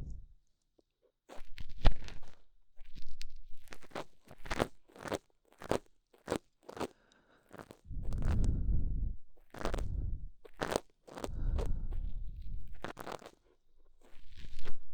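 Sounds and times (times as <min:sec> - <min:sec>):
ear pick scraping microphone: 0:07.9 - 0:13.4.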